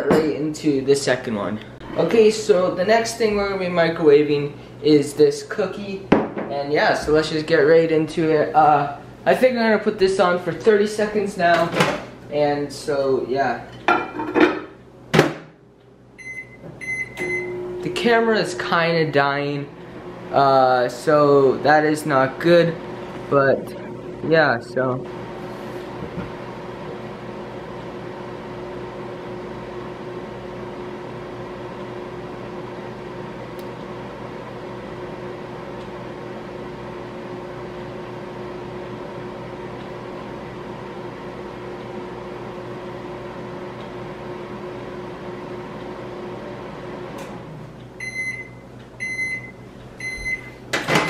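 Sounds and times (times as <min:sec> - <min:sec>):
microwave oven humming: 0:00.0 - 0:51.0
microwave short beeps: 0:16.2 - 0:17.8, 0:48.0 - 0:51.0.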